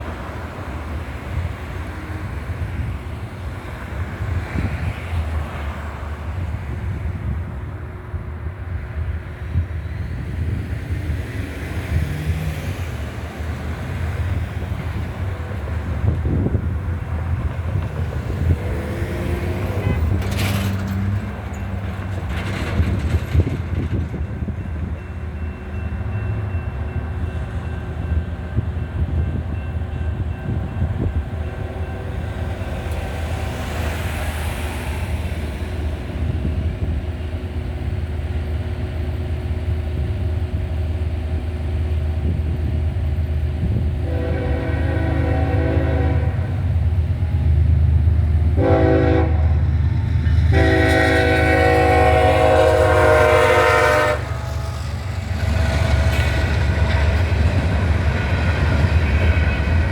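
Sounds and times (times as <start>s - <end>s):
traffic over railroad crossing: 0.0s - 59.9s
train approaching: 0.0s - 59.9s
wind rumble on microphone: 12.8s - 20.4s, 22.2s - 25.0s, 42.1s - 48.4s
locomotive air horn: 19.5s - 20.4s, 44.0s - 46.6s, 48.5s - 49.6s, 50.4s - 54.9s.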